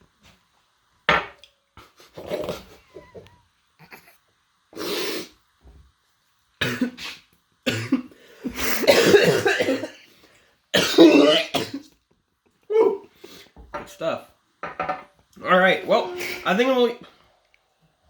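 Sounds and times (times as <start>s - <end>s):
man coughing: 8.8s - 10.0s.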